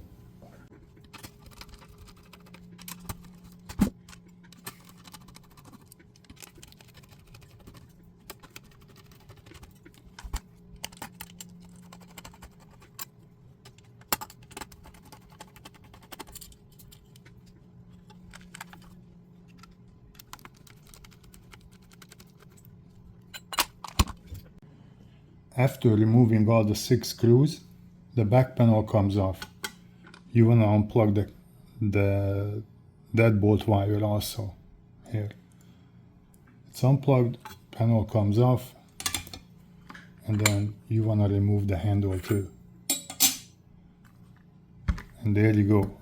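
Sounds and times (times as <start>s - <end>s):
metal parts being handled: 39.0s - 39.4s, 42.2s - 43.5s.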